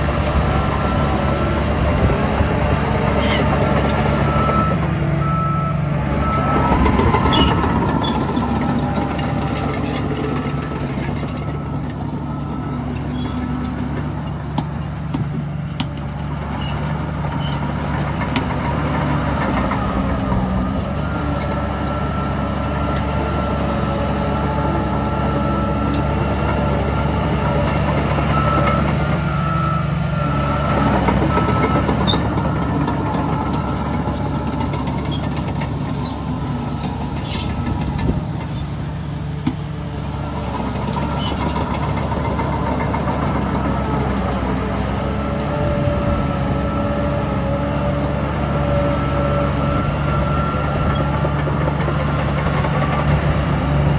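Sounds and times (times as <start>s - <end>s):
heavy diesel machinery running: 0.0s - 53.9s
small squeaks and clicks: 3.1s - 4.7s, 6.2s - 20.2s, 30.3s - 39.0s, 40.8s - 43.6s.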